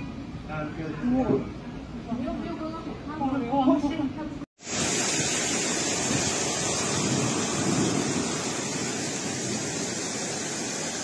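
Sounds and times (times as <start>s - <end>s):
heavy rain pouring: 4.6s - 11.0s.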